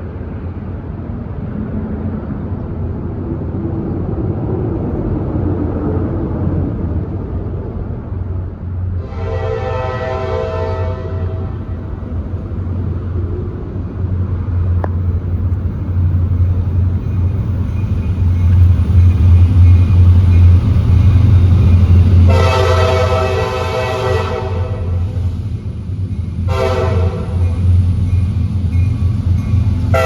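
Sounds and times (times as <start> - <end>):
freight train rumbling past: 0.0 - 30.0
locomotive horn blast: 9.0 - 11.7, 22.2 - 25.2, 26.4 - 27.7.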